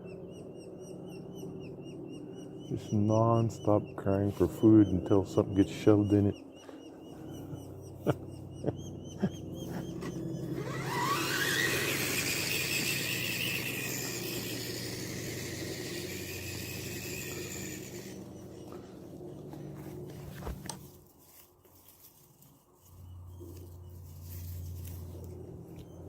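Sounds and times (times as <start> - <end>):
toy truck motor whining: 10.0 - 18.3.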